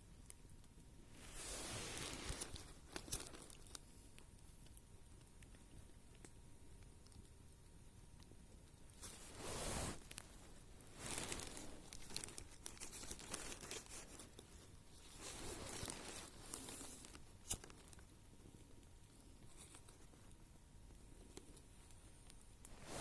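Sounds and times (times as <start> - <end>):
plastic bag crinkling: 1.2 - 3.8, 9.0 - 18.0.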